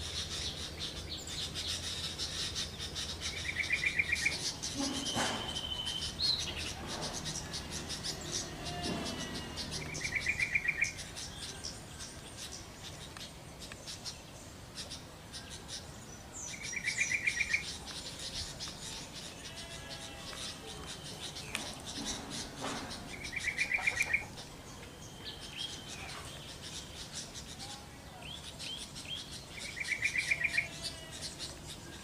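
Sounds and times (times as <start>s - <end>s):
bulbul bubbly calls: 23.2s - 24.4s.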